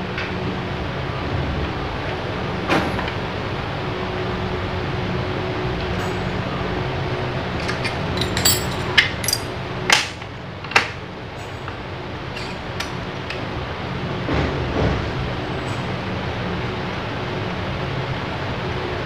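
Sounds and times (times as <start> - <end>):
metallic clinks of tools: 7.6 - 9.6.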